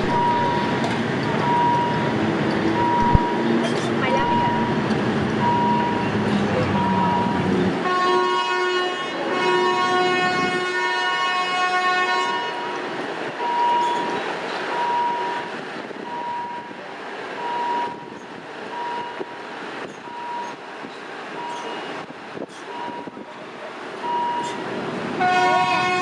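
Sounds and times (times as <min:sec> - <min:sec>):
short steady beeps: 0:00.0 - 0:00.7, 0:02.8 - 0:03.4, 0:04.1 - 0:04.8
train rumbling along tracks: 0:00.0 - 0:26.0
train horn: 0:07.8 - 0:12.9, 0:25.2 - 0:26.0.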